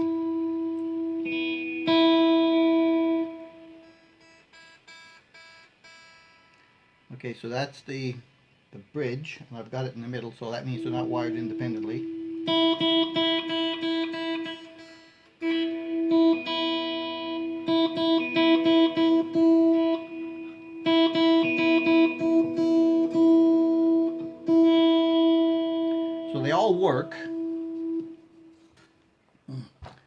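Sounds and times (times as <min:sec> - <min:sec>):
electric guitar high note picked: 0:00.0 - 0:05.0, 0:10.5 - 0:28.8.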